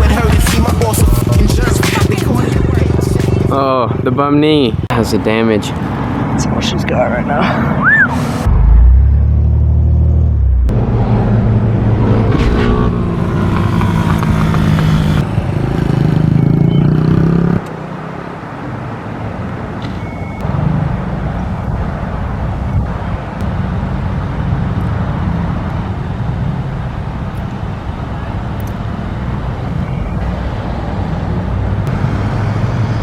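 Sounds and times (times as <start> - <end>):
off-road vehicle engine revving: 0.0 - 4.4, 7.8 - 17.7, 22.8 - 33.0
ground noise: 8.0 - 15.4.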